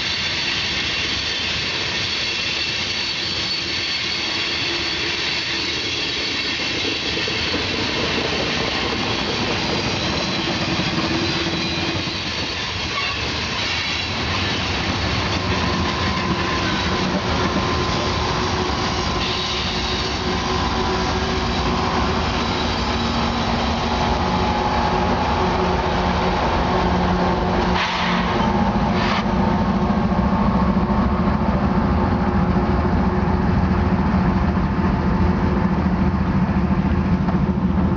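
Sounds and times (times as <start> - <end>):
wheel squeal: 0.1 - 20.8
freight cars rolling on rails: 1.9 - 37.9.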